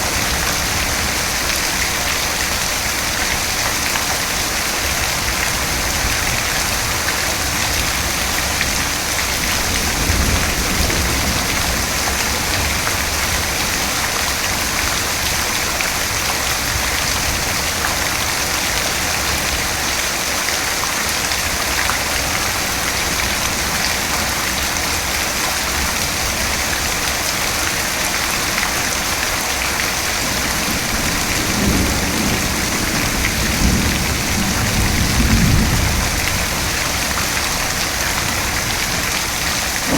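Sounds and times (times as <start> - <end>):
rain falling: 0.0 - 39.9
low thunder rumbling: 6.7 - 13.6.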